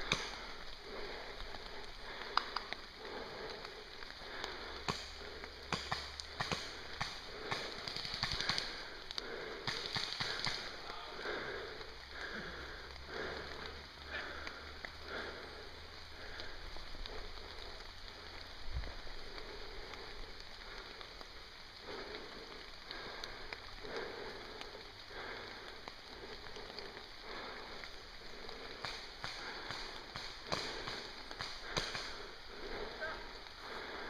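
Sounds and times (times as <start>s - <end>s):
rain falling through leaves: 0.0s - 34.0s.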